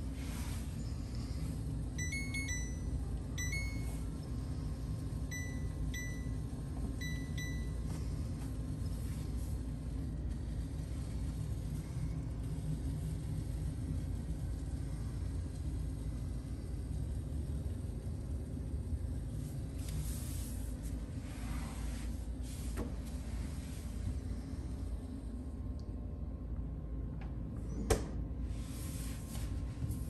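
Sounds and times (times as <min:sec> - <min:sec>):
steady low rumble: 0:00.0 - 0:27.6
short high beeps: 0:02.0 - 0:02.8.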